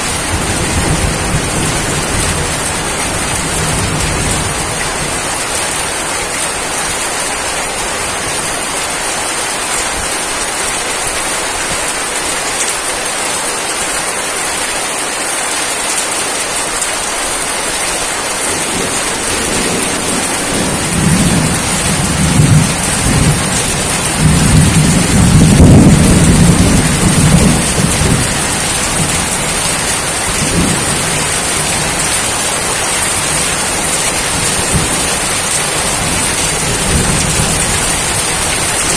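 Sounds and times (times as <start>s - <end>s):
thunder rumbling: 0.0s - 7.0s, 18.4s - 38.9s
steady rain hiss: 0.0s - 38.9s.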